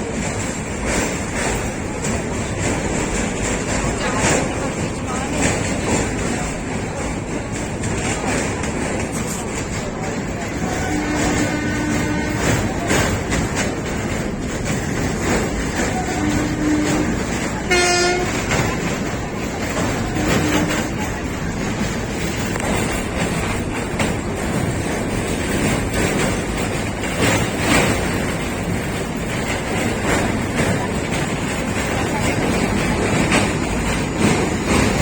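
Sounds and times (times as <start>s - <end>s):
train rumble and rail clatter: 0.0s - 35.0s
train horn blast: 10.6s - 13.0s, 15.8s - 18.9s, 19.8s - 21.1s.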